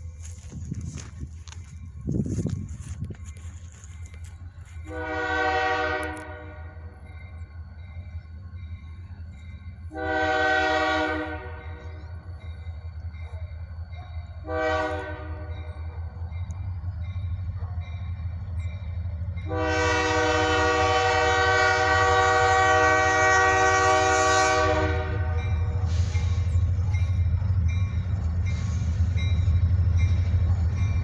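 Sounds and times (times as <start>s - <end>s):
diesel locomotive rumble: 0.0s - 31.0s
train air horn blasts: 4.7s - 7.0s, 9.9s - 12.1s, 14.4s - 15.8s, 19.4s - 26.6s.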